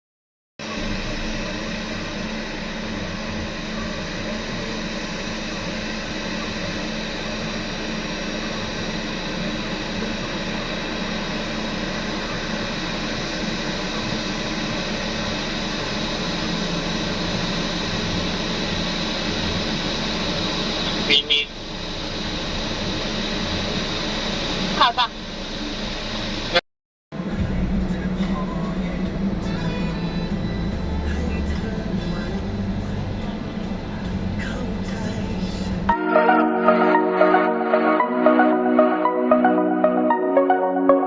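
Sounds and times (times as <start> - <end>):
air-conditioning noise: 0.6 - 26.6, 27.2 - 36.0
airliner cabin engine hum: 0.6 - 41.0
steady tones: 35.9 - 41.0.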